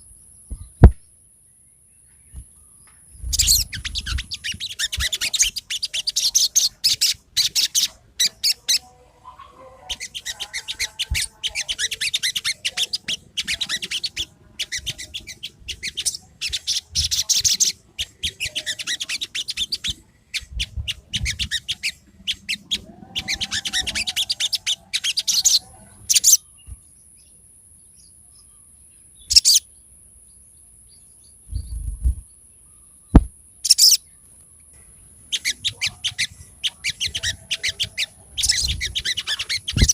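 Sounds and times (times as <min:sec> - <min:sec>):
bird twittering chirps: 0:00.0 - 0:08.9, 0:09.8 - 0:39.9
low thump: 0:00.5 - 0:01.0, 0:33.1 - 0:33.4.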